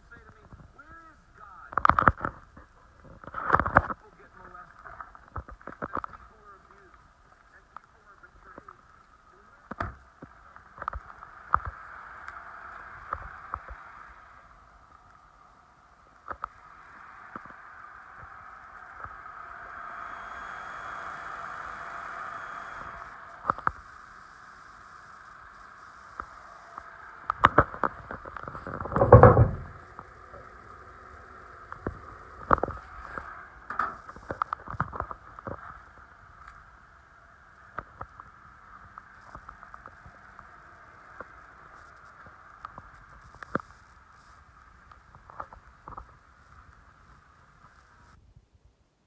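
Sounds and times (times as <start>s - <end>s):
sharp clicks and knocks: 1.7s - 4.0s, 9.7s - 11.8s, 26.2s - 30.5s, 31.7s - 35.7s
car engine hum: 4.0s - 48.2s
loud rush of noise: 9.3s - 44.3s
clicks and knocks: 27.3s - 30.1s, 33.7s - 35.6s.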